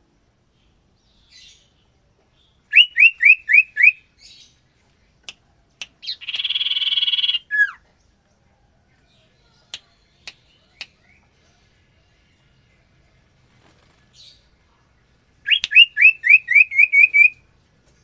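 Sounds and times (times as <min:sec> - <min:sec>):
bird whistled notes: 0:02.7 - 0:04.0, 0:15.5 - 0:17.4
bird sharp ticks: 0:05.2 - 0:06.7.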